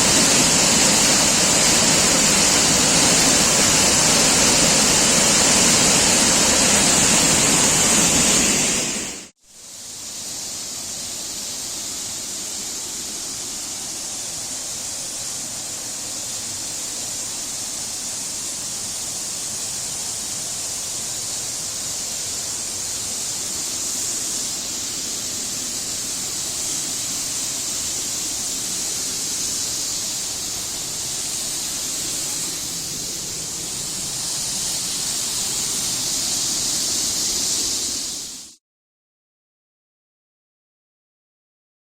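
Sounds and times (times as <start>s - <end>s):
waterfall rushing: 0.0s - 9.3s, 11.8s - 38.5s.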